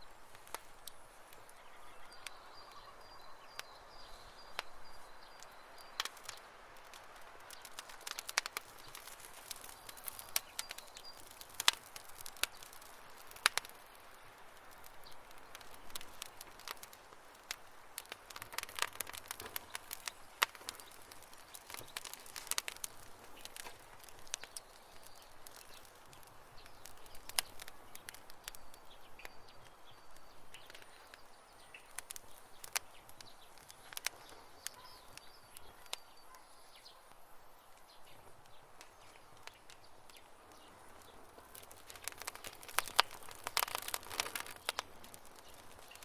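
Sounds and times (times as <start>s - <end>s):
campfire crackling: 0.0s - 46.0s.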